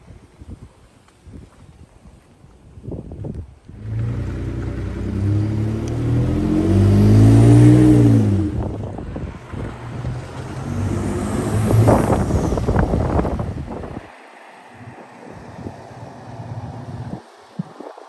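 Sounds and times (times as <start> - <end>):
truck engine revving: 3.8 - 14.1.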